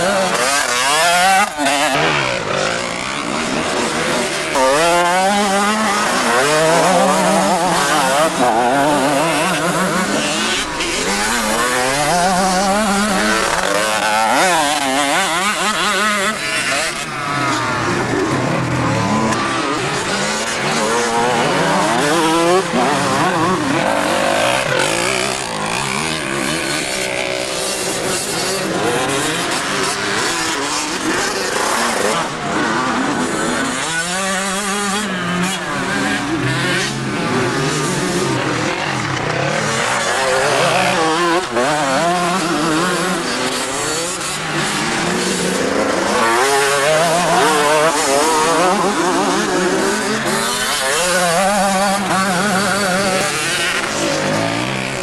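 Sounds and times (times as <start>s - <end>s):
motocross engines revving: 0.0s - 55.0s.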